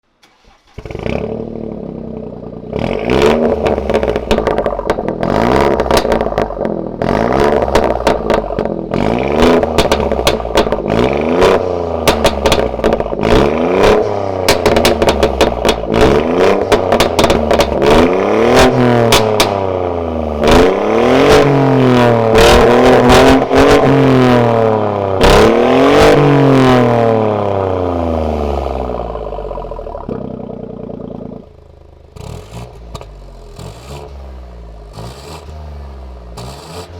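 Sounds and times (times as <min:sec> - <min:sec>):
car engine revving: 0:00.2 - 0:36.9
exhaust pops and cracks: 0:02.8 - 0:19.7, 0:29.9 - 0:31.4, 0:32.1 - 0:34.1.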